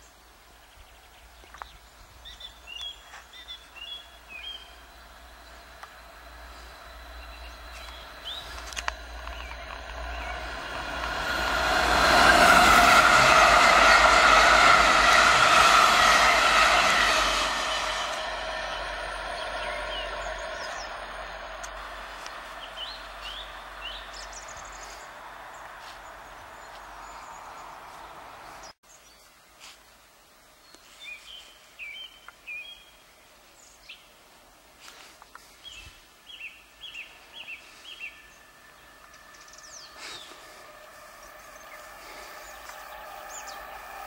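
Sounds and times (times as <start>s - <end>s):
small birds chirping: 0.0s - 10.5s, 18.6s - 29.4s, 34.8s - 44.0s
quiet woodland background: 0.0s - 44.0s
rising rush of approaching train: 1.0s - 28.8s, 34.8s - 44.0s
electric train rolling: 3.6s - 27.8s, 37.1s - 44.0s.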